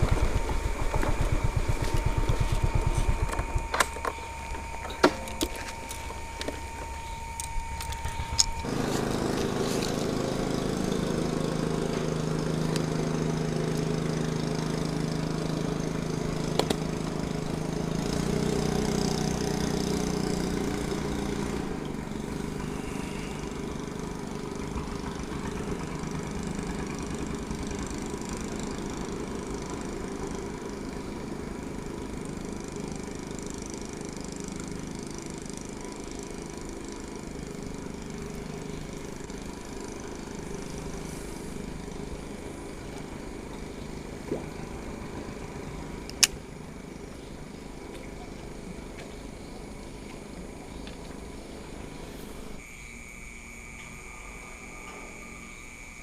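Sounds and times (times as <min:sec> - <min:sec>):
small engines running: 0:00.0 - 0:56.0
sharp clicks: 0:46.1 - 0:46.4.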